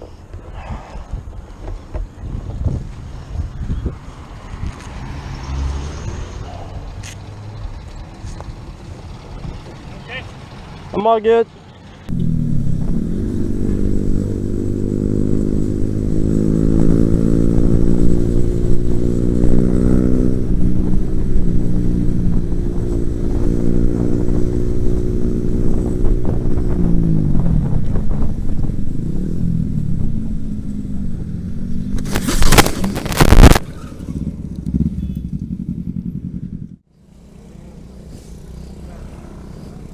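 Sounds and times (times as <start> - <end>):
motorcycle engine accelerating: 11.7 - 39.9.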